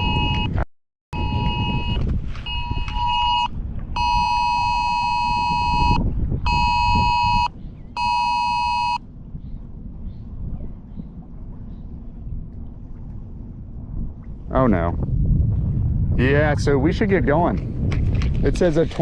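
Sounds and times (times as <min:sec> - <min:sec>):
two-tone phone alert blaring: 0:00.0 - 0:00.6, 0:01.2 - 0:09.0
wind and water rumble: 0:00.0 - 0:19.0.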